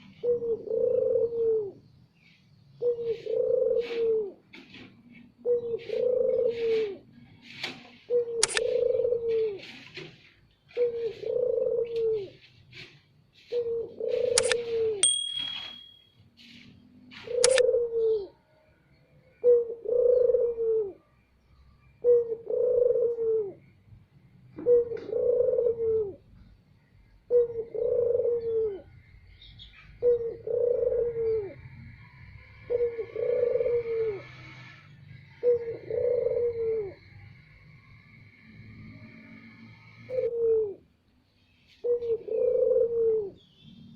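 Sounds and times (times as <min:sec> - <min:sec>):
dove cooing: 0:00.0 - 0:04.5, 0:05.4 - 0:15.0, 0:17.1 - 0:18.4, 0:19.3 - 0:21.1, 0:22.0 - 0:23.8, 0:24.5 - 0:26.5, 0:27.3 - 0:29.0, 0:29.8 - 0:37.1, 0:39.8 - 0:40.9, 0:41.8 - 0:43.5
sharp clicks: 0:08.4 - 0:08.7, 0:14.4 - 0:15.8, 0:17.4 - 0:17.6.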